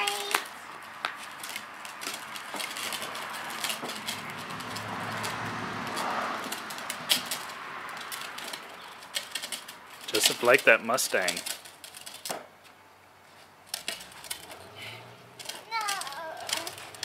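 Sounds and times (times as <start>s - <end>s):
car driving past: 3.0s - 8.7s, 14.4s - 15.4s.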